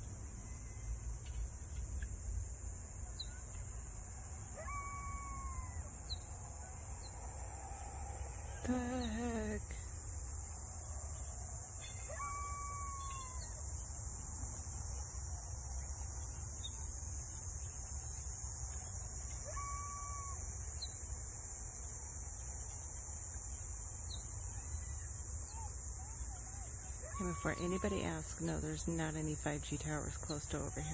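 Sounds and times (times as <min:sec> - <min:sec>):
drawn-out calls: 0:27.0 - 0:30.9.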